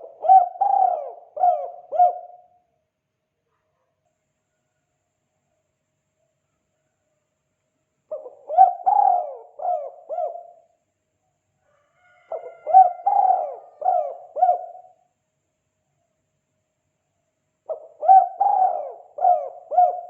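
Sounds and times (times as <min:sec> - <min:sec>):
dove cooing: 0:00.0 - 0:02.6, 0:08.1 - 0:10.7, 0:12.2 - 0:15.0, 0:17.7 - 0:20.0.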